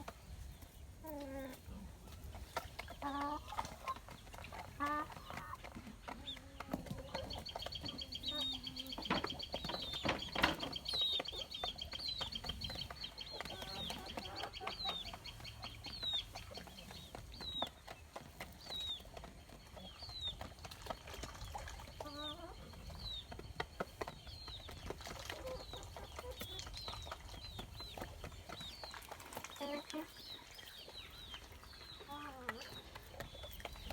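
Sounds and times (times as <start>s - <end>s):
chickens clucking low: 0.0s - 33.9s
high peeping calls: 7.0s - 17.8s.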